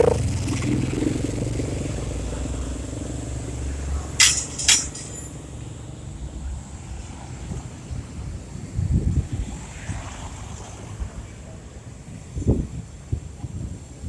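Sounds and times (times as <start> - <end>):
sharp metallic clinks: 4.2 - 5.4.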